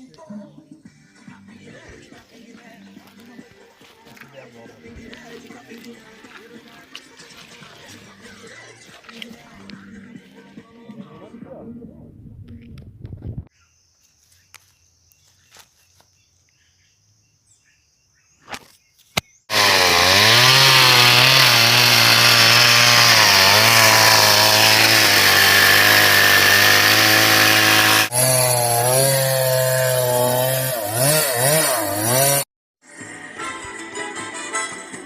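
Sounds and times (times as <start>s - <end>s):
chainsaw running at high revs: 19.5s - 32.5s.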